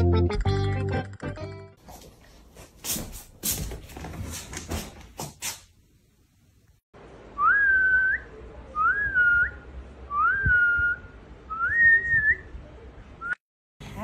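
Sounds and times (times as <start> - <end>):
person whistling calls: 7.4 - 12.5.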